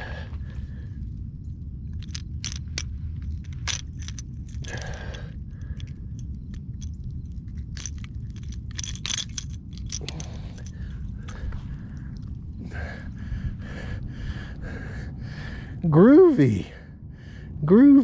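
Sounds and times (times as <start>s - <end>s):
wind and handling rumble: 0.0s - 18.0s
fishing lure rattling and clicking: 1.9s - 12.3s.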